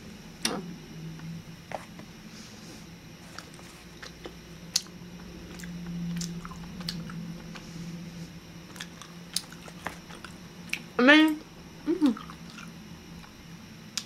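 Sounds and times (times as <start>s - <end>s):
low hum: 0.0s - 14.0s
wet chewing squishing: 5.5s - 7.6s, 8.7s - 10.9s.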